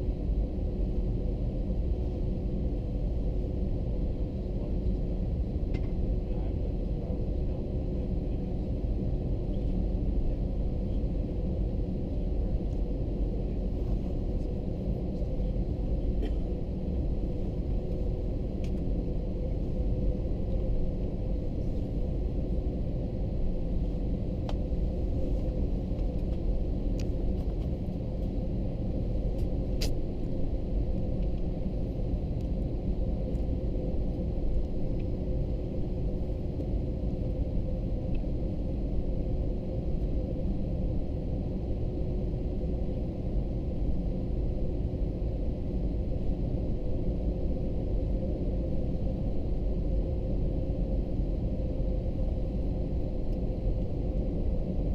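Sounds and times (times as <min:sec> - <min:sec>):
airplane cabin engine rumble: 0:00.0 - 0:54.9.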